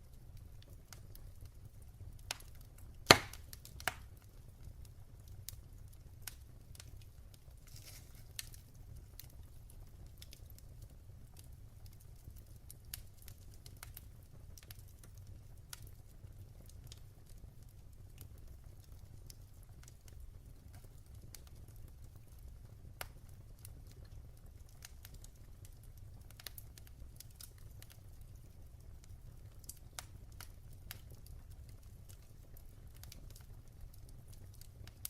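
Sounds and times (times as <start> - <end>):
fire crackling: 0.0 - 35.0
sharp loud pop of fire: 3.1 - 3.5.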